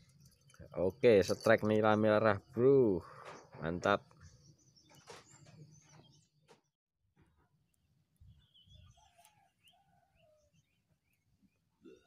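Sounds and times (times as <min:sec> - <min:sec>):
faint bird chirps: 0:08.2 - 0:12.0.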